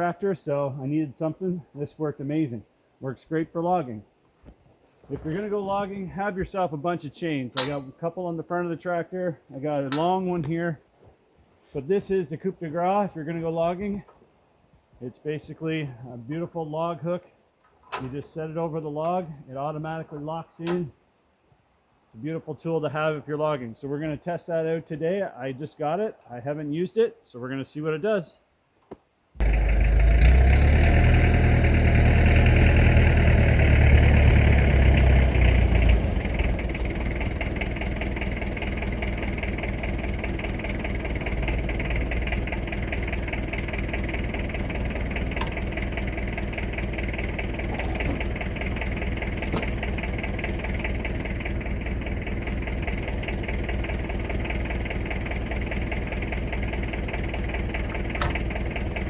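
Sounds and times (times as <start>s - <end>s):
tractor engine running: 7.6s - 8.0s, 9.5s - 10.5s, 29.4s - 59.0s.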